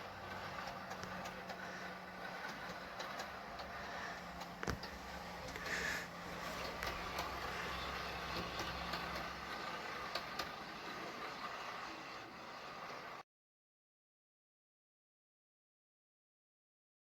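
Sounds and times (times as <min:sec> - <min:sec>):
light clicks of model train: 0:00.0 - 0:13.2
model train humming: 0:00.0 - 0:13.2.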